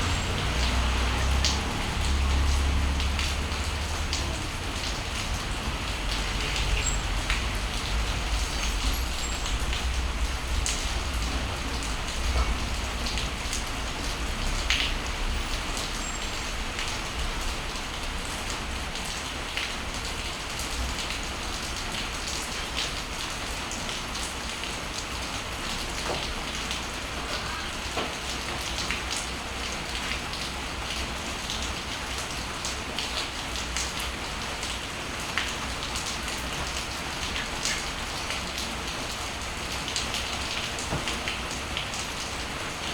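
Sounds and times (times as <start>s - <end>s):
steady rain falling: 0.0s - 42.9s
low rumble: 7.0s - 15.4s.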